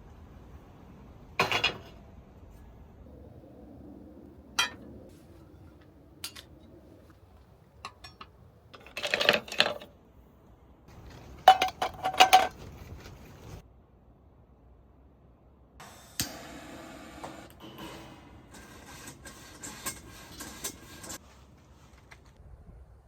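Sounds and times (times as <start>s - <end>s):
dishes clinking and clattering: 1.4s - 2.0s, 7.8s - 9.9s, 10.9s - 13.6s.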